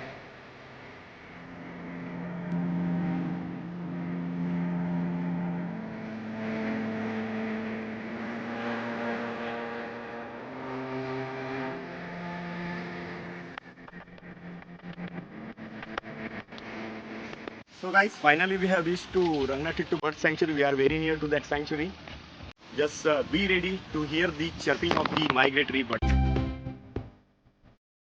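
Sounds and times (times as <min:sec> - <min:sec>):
vehicle engine running: 0:00.0 - 0:17.7.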